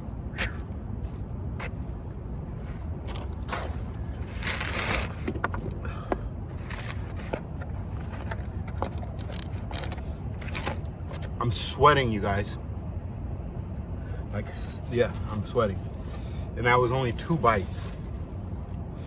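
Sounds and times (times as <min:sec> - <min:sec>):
steady low rumble: 0:00.0 - 0:19.0
paper wrappers rustling and crumpling: 0:03.5 - 0:05.4, 0:06.6 - 0:11.2.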